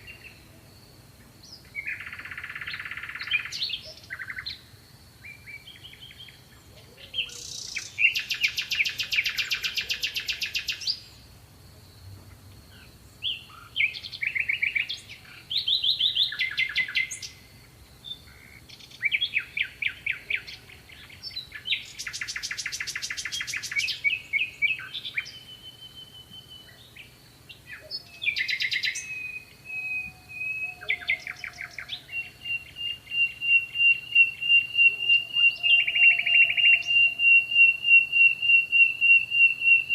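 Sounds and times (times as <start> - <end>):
songbirds trilling: 0.0 - 11.4, 12.0 - 39.9
bird chirps and whistles: 28.2 - 39.9.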